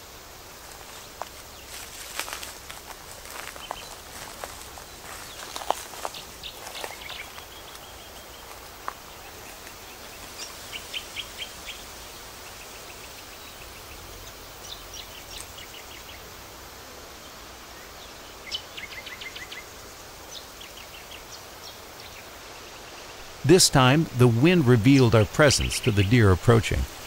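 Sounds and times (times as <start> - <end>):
outdoor background hiss: 0.0 - 27.0
bird chirping: 3.4 - 11.8, 20.3 - 27.0.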